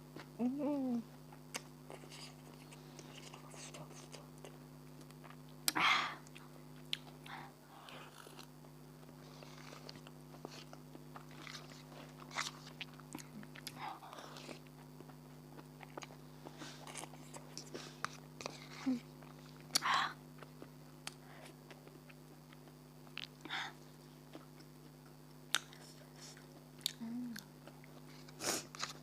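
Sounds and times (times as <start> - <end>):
faint steady hum: 0.0 - 29.0
person chewing: 1.3 - 23.4, 24.2 - 29.0.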